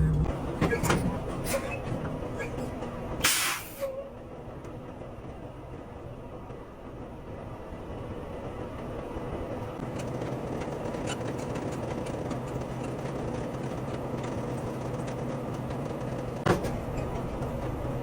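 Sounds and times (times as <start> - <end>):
truck engine drone: 0.0 - 6.8.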